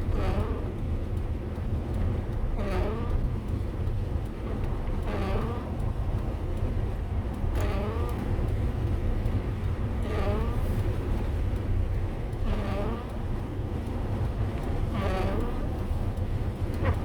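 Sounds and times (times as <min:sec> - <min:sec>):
vehicle engine and tyre rumble: 0:00.0 - 0:17.0.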